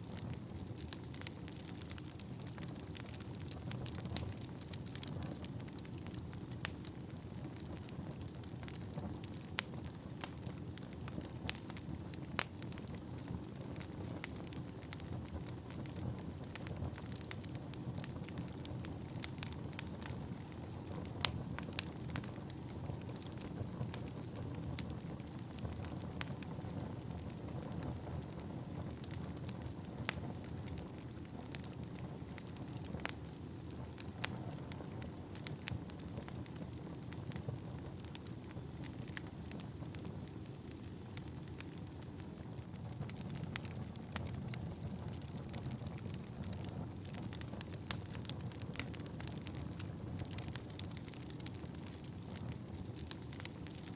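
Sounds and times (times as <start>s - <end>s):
flames rumbling in fireplace: 0.0s - 53.9s
logs crackling and popping: 0.0s - 53.9s
faint high whistle: 36.7s - 42.6s.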